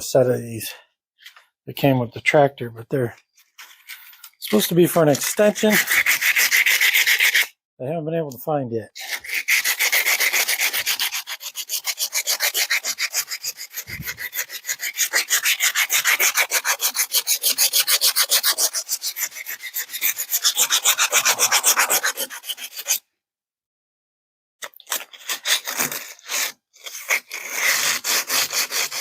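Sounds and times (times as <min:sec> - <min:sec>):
emery cloth scrubbing rusty steel: 0:03.6 - 0:07.5, 0:09.0 - 0:23.0.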